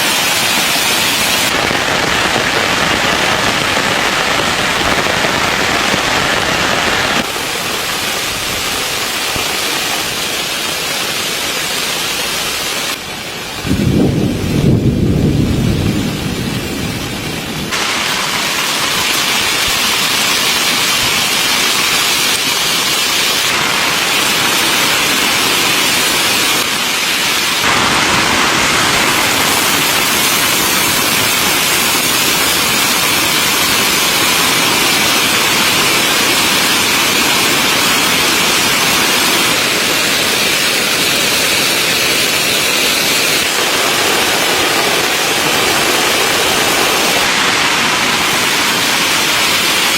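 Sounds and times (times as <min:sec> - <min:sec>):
heavy rain on a tent: 0:00.0 - 0:49.9
low thunder rumble: 0:13.6 - 0:17.7.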